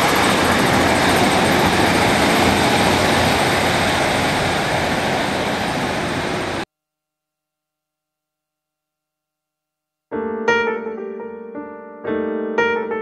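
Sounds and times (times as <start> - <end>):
diesel train passing: 0.0 - 6.6.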